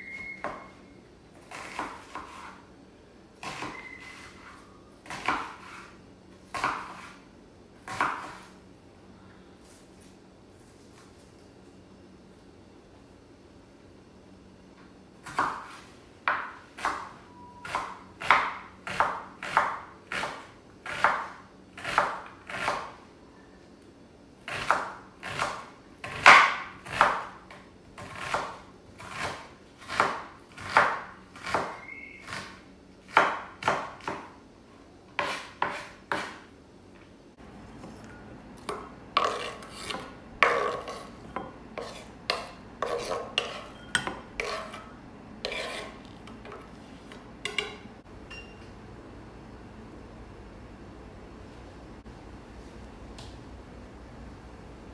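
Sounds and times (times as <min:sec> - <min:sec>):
scraping strokes on a board: 0:35.2 - 0:36.4, 0:39.2 - 0:43.8, 0:44.4 - 0:46.7.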